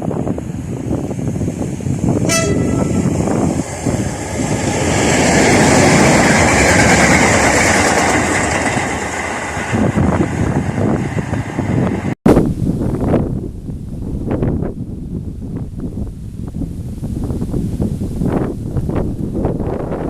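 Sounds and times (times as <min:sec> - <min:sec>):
train rushing roar: 0:00.0 - 0:12.2
train horn toot: 0:02.2 - 0:03.4.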